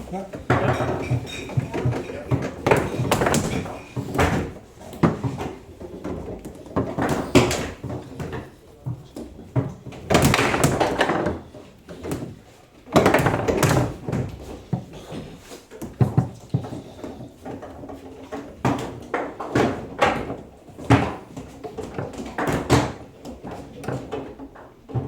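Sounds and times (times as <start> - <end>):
table football rattling: 0.3 - 15.2.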